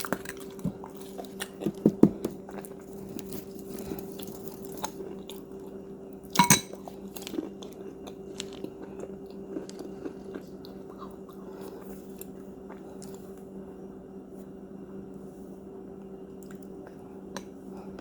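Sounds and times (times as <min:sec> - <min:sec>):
chewing: 0:00.0 - 0:05.8, 0:06.7 - 0:13.4
cookie crunching: 0:00.0 - 0:13.3
steady low hum: 0:00.0 - 0:18.0.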